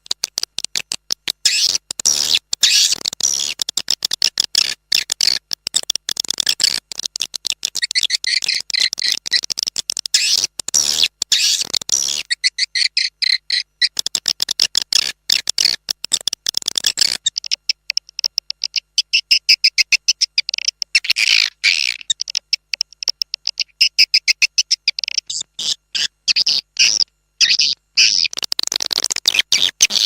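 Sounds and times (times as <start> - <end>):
swiftlet calls chirping: 1.4 - 3.6, 7.6 - 9.6, 10.2 - 15.8.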